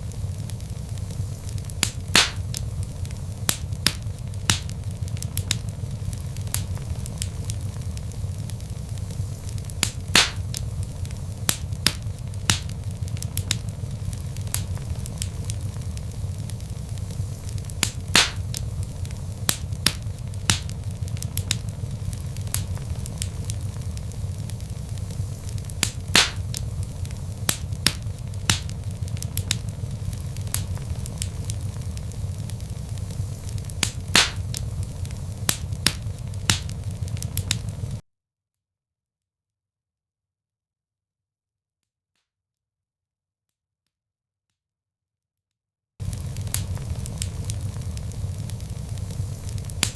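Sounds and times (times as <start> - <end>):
log fire crackling: 0.0 - 38.0, 46.0 - 49.9
loud fire pop: 1.4 - 8.5, 9.4 - 16.5, 17.4 - 38.0, 46.0 - 49.9.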